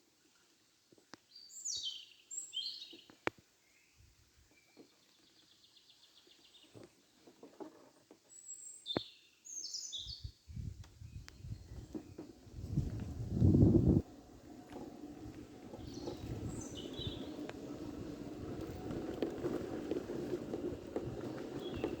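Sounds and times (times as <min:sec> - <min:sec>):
songbird singing: 0:01.0 - 0:07.3, 0:08.2 - 0:22.0
low rumbling noise: 0:12.3 - 0:19.5.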